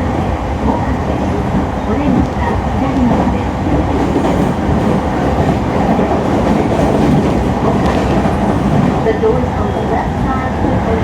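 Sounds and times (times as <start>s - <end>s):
train wheels rolling: 0.2s - 10.0s.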